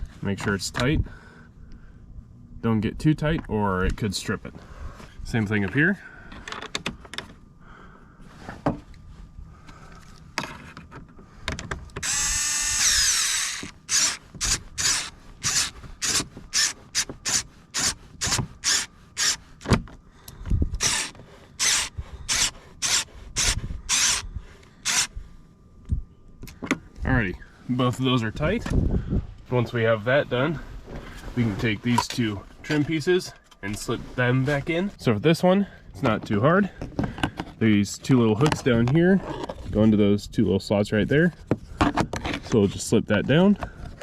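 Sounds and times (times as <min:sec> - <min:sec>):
electric screwdriver running: 0:12.0 - 0:19.4, 0:20.8 - 0:24.2, 0:24.8 - 0:25.1.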